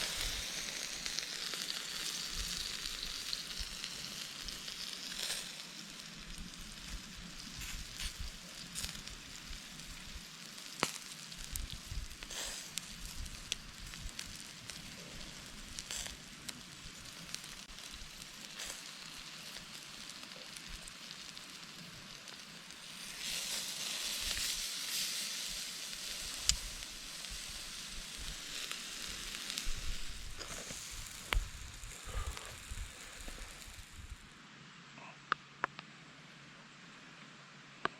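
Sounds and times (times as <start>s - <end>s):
campfire pops and crackles: 0.0s - 34.3s
food sizzling on a grill: 0.0s - 34.3s.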